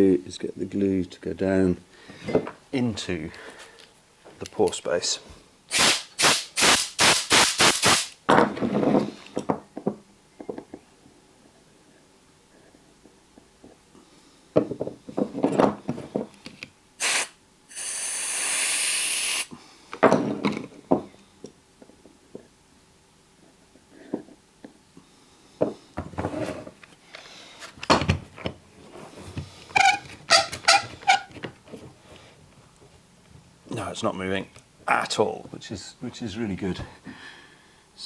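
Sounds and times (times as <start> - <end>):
steady hiss: 2.8 - 8.2, 17.0 - 19.9
short squeaks: 29.7 - 31.4.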